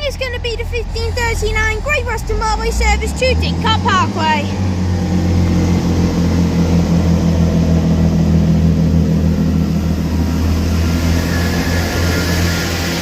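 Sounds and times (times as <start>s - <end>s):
train diesel engines droning: 0.0s - 13.0s.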